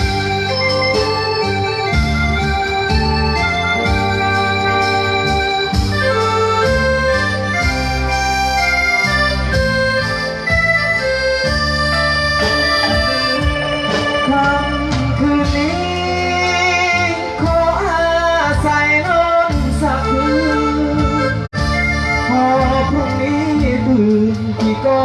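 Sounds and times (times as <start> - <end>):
band playing melody: 0.0 - 25.0
steady drum beat: 1.5 - 8.1, 11.4 - 16.6.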